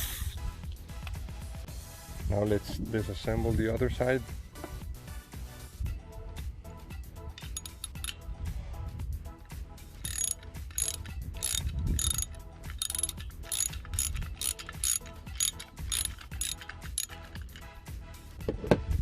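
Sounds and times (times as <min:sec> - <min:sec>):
socket ratchet clicking: 0:07.4 - 0:08.2, 0:10.0 - 0:17.8.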